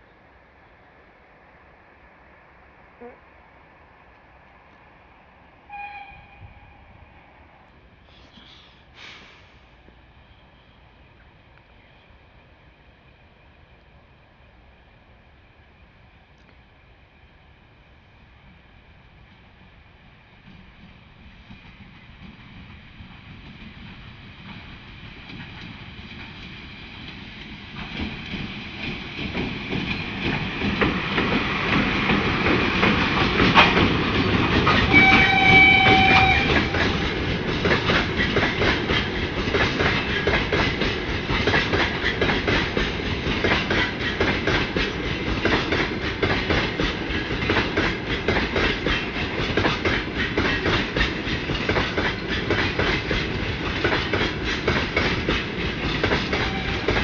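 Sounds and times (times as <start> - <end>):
freight train passing: 0.0 - 57.0
locomotive horn blast: 5.7 - 7.0, 34.9 - 36.8, 56.4 - 57.0.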